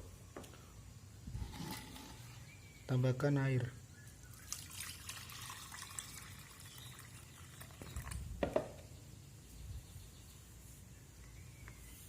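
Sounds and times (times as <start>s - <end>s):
water pouring into container: 4.4s - 8.2s
knock: 8.4s - 8.8s.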